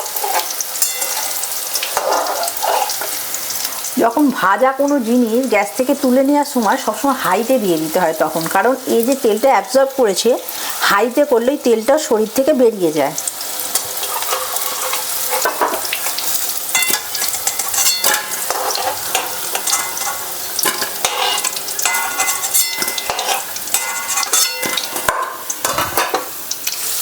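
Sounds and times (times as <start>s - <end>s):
metal spoon scraping a pan: 0.0s - 3.8s, 13.6s - 27.0s
food sizzling in hot oil: 0.0s - 27.0s.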